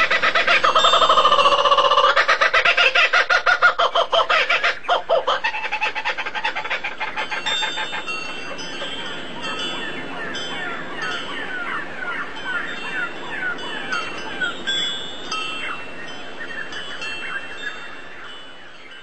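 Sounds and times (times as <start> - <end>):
bird chattering call: 0.0 - 9.0.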